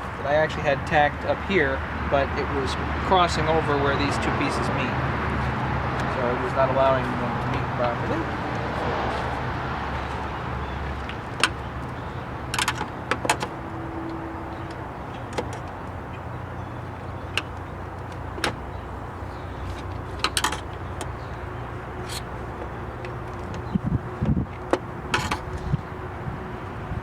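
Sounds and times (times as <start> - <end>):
traffic rumble: 0.0 - 27.0
wind noise: 23.2 - 27.0.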